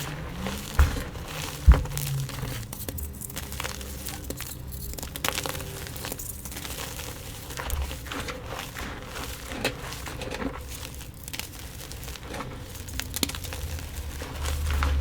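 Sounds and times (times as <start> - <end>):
chalk crackling: 0.0 - 15.0
heavy knock: 0.8 - 2.2.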